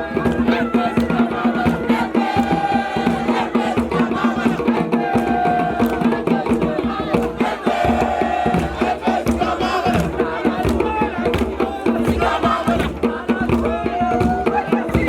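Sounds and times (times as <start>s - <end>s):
group singing: 0.0s - 15.0s
quick percussion beat: 0.0s - 15.0s.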